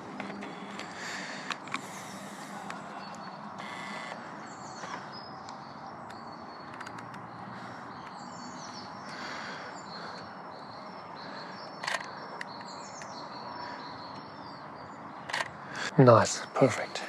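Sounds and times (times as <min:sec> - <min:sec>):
outdoor background hiss: 0:00.0 - 0:17.0
small birds chirping: 0:00.0 - 0:17.0
clicks: 0:04.8 - 0:07.3.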